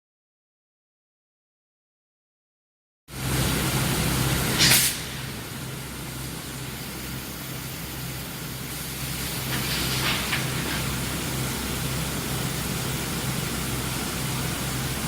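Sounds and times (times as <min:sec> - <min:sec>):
low electrical hum: 0:03.2 - 0:15.0
short hiss: 0:04.6 - 0:05.3.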